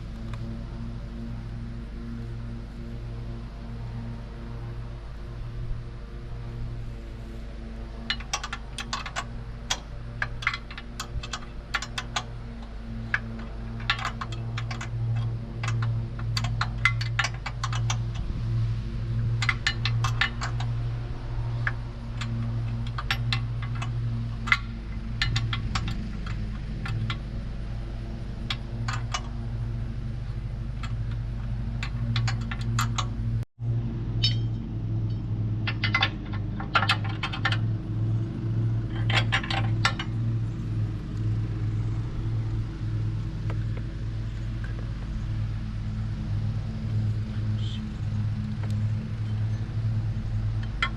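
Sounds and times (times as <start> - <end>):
small engine running: 0.0 - 50.9
metallic clinks and rattles: 8.0 - 18.3, 19.2 - 27.3, 30.7 - 33.2, 34.2 - 37.6, 38.2 - 40.7.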